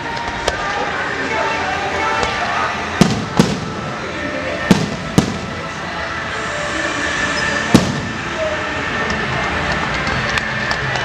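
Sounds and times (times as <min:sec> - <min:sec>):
steady background din: 0:00.0 - 0:11.0
fireworks bangs: 0:03.0 - 0:06.4, 0:07.7 - 0:08.6.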